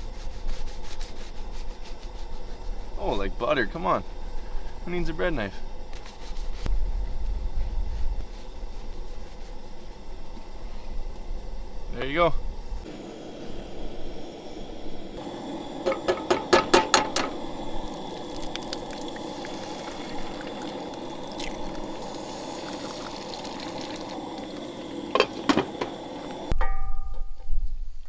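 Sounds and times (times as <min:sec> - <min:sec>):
food sizzling in a frying pan: 0:15.2 - 0:26.5.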